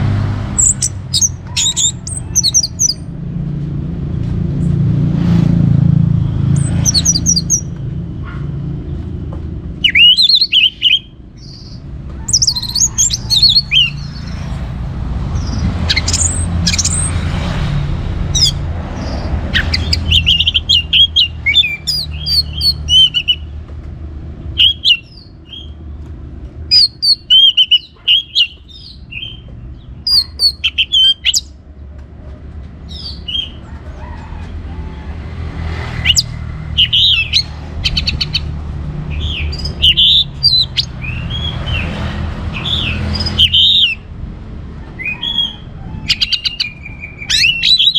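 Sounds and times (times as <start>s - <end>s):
thrush singing: 9.8s - 23.5s, 24.5s - 25.8s, 35.4s - 44.2s.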